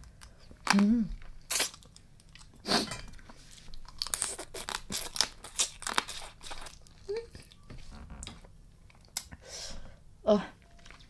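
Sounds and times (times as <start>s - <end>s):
crunching and chewing food: 0.0s - 7.7s.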